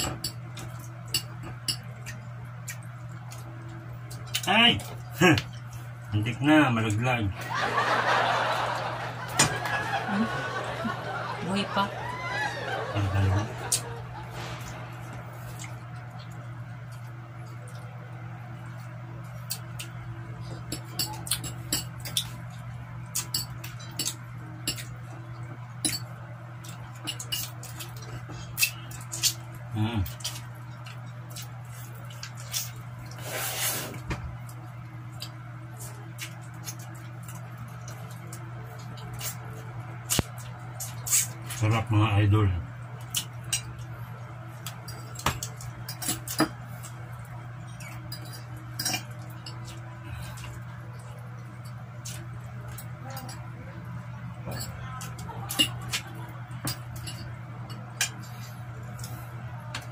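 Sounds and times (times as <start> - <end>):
steady low hum: 0.0 - 59.9
chewing and lip-smacking: 0.6 - 5.8, 18.6 - 20.0, 26.6 - 33.2, 34.4 - 41.6, 43.0 - 53.0
chewing and lip smacking: 1.9 - 4.5.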